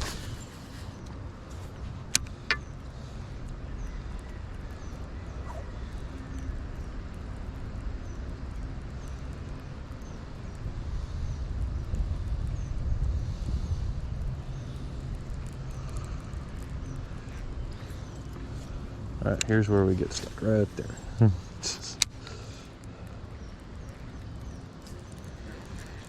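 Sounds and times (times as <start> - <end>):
wind buffeting microphone: 0.0 - 26.0
sharp clicks: 21.6 - 26.0.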